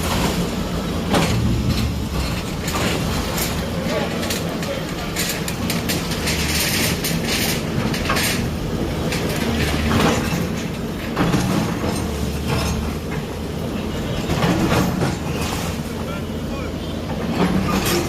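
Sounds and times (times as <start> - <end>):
clattering and rattling: 0.0 - 13.5, 14.1 - 16.0, 17.1 - 18.0
heavy diesel machine running: 0.0 - 18.0.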